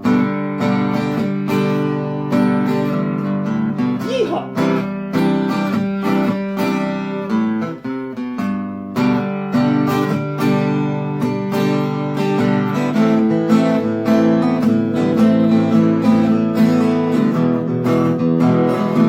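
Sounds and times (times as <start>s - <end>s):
acoustic guitars strumming: 0.0s - 19.0s.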